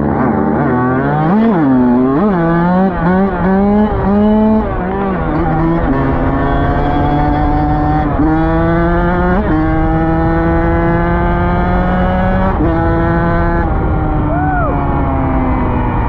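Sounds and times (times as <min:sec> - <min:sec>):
rising and falling tone: 0:00.0 - 0:16.0.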